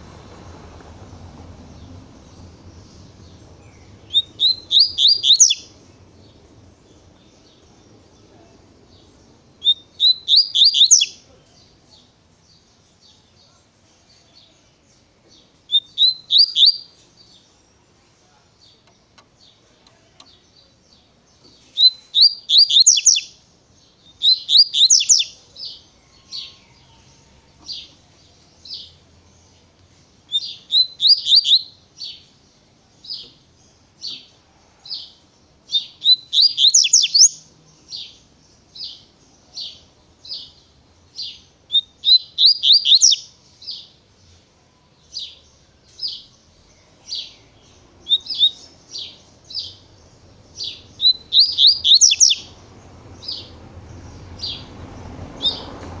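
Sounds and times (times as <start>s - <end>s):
bird singing high whistled notes: 1.8s - 6.0s, 9.6s - 11.2s, 15.7s - 17.0s, 21.7s - 23.4s, 24.0s - 26.8s, 30.3s - 32.2s, 35.7s - 38.1s, 41.2s - 43.9s, 48.0s - 49.9s, 50.5s - 52.6s.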